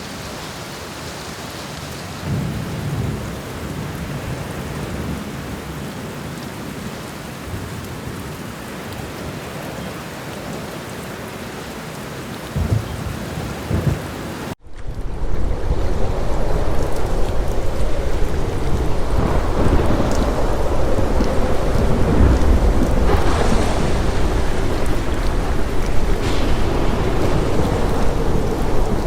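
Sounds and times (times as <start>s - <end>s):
heavy rain: 0.0s - 29.0s
distant thunder rolling: 2.2s - 6.7s, 12.4s - 29.0s.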